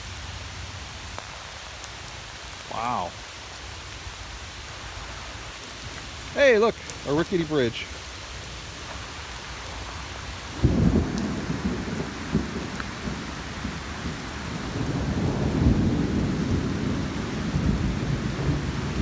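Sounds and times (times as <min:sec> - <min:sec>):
rain falling: 0:00.0 - 0:19.0
thunder rumbling: 0:09.3 - 0:19.0.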